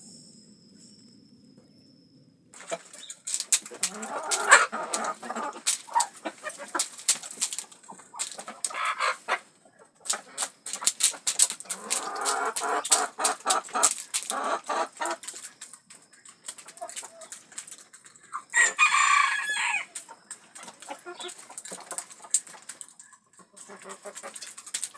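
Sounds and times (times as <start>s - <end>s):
faint low hum: 0.0s - 24.8s
chickens clucking: 2.6s - 24.9s
beak taps pecking feed: 10.1s - 17.8s.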